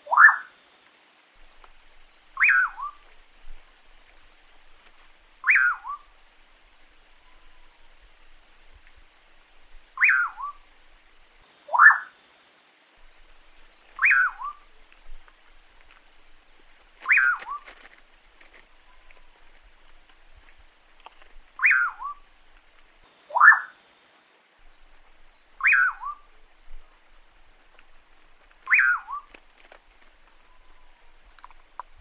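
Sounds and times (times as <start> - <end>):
bird whistling falling note: 28.7 - 29.2.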